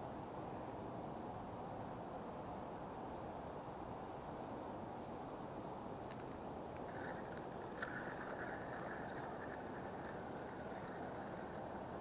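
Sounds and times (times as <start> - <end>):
wind blowing: 6.5 - 12.0.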